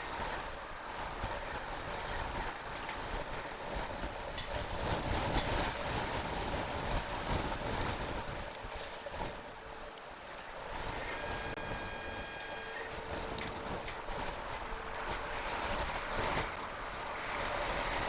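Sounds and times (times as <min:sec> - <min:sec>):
faint steady hum: 0:00.0 - 0:18.0
wind rushing over microphone: 0:00.0 - 0:18.0
high-pitched tone: 0:10.8 - 0:13.8.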